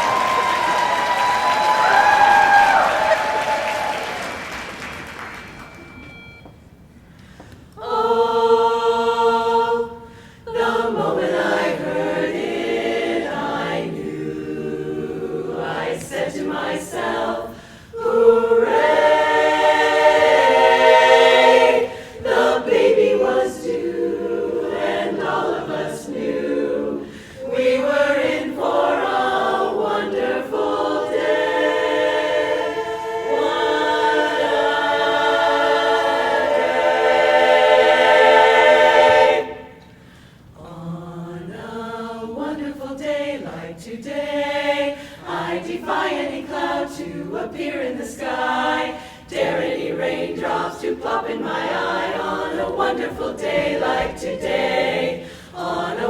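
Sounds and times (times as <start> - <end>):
applause: 0.0 - 6.1
barbershop chorus singing: 7.8 - 40.0, 40.6 - 56.0.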